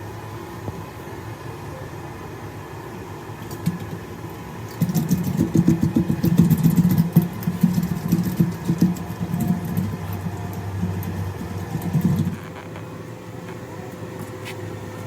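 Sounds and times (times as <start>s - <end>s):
generator engine running: 3.1s - 15.0s.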